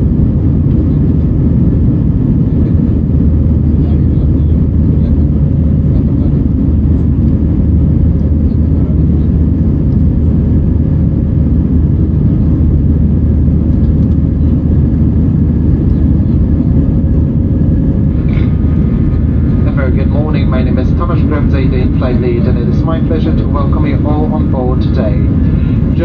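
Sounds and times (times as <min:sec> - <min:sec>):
aircraft engines rumbling: 0:00.0 - 0:26.0
airflow over fuselage: 0:00.0 - 0:26.0
faint steady hum: 0:00.0 - 0:26.0.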